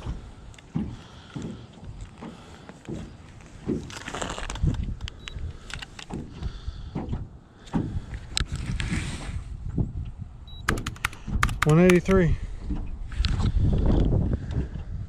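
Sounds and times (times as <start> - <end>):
wind buffeting: 0.0 - 15.0
sharp clicks and knocks: 10.6 - 14.9.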